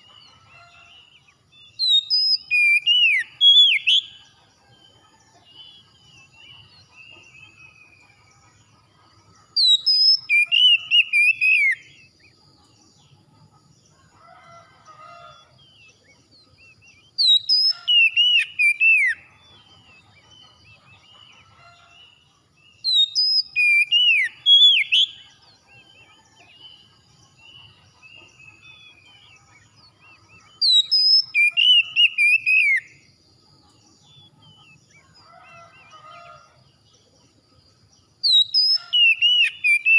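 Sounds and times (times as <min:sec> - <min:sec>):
faint bird chirps: 0:00.0 - 0:39.9
songbird whistling: 0:01.7 - 0:04.2, 0:09.6 - 0:12.0, 0:16.6 - 0:19.3, 0:22.8 - 0:25.2, 0:30.0 - 0:33.0, 0:38.2 - 0:39.9.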